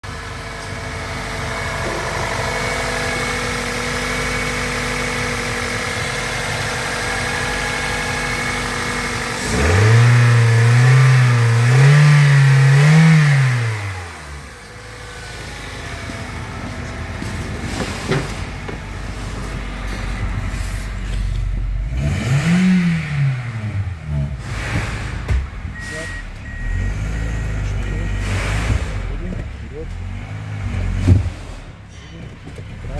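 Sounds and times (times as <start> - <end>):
car engine idling and revving: 0.0 - 32.9.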